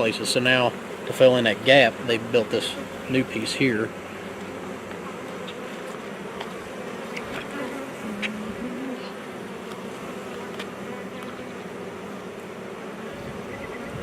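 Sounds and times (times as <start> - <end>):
bee droning past close: 0.0 - 14.0
hum of many bees: 0.0 - 14.0.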